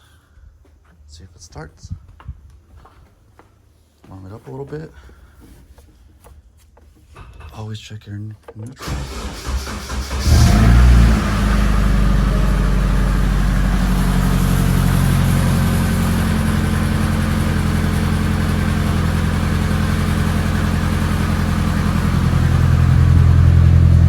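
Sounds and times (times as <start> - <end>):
car engine starting and idling: 8.8 - 24.0.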